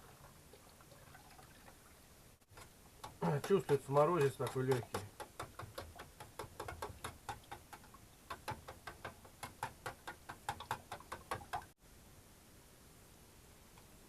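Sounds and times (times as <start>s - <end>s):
fork beating eggs: 2.5s - 11.7s.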